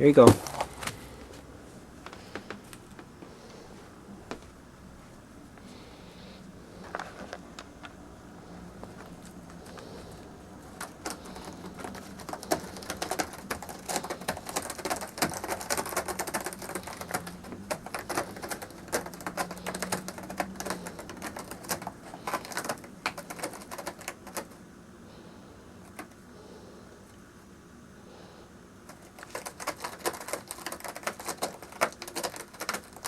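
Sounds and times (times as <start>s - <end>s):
cat claws scratching scratcher: 5.7s - 24.6s, 28.9s - 33.0s.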